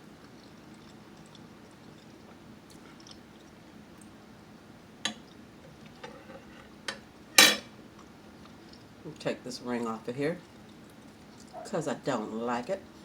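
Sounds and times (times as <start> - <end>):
quiet chewing: 0.2 - 4.2, 8.0 - 8.9, 10.4 - 11.7.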